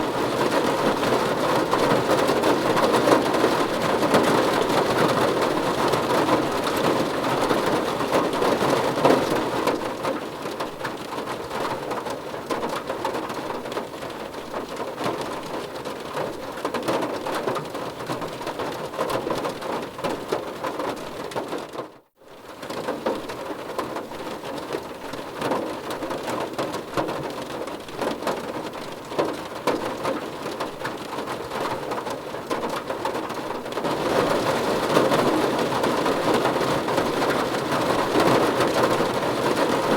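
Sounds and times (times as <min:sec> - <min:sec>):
rain pattering on car roof: 0:00.0 - 0:39.9.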